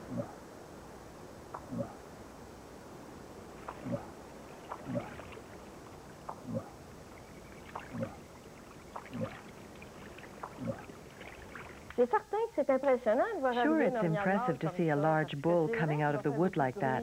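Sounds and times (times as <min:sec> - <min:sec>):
sloshing and splashing in water: 0:03.5 - 0:12.0.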